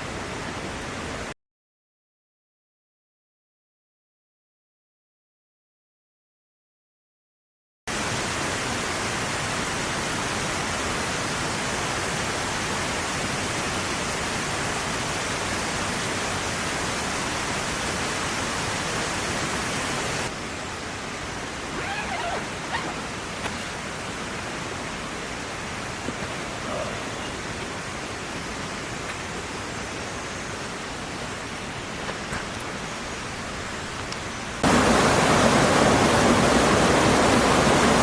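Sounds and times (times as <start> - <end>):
water rushing: 7.9 - 38.0.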